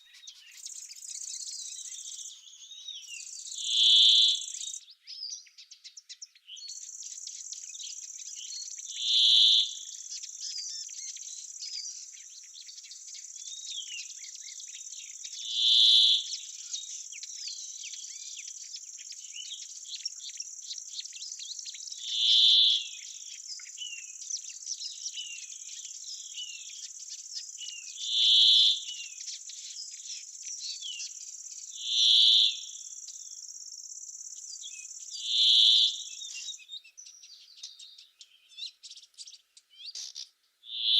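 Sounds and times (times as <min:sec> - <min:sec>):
small bird chirps: 0:00.0 - 0:40.9
loud high bird call: 0:40.0 - 0:40.9.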